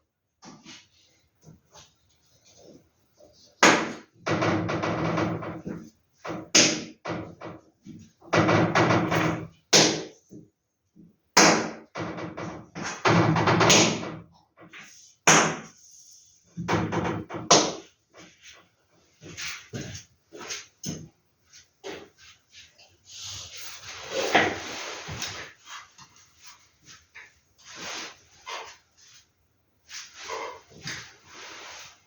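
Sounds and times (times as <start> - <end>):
sharp knocks and taps: 16.6 - 17.9
paper posters rustling and sliding: 22.4 - 32.0.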